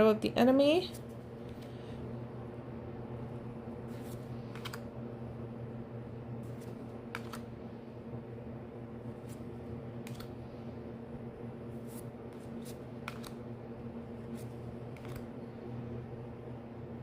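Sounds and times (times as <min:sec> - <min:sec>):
steady low hum: 0:00.0 - 0:17.0
trading cards flipped: 0:03.9 - 0:04.9, 0:06.4 - 0:07.5, 0:10.0 - 0:10.4, 0:11.8 - 0:13.4, 0:14.3 - 0:15.3.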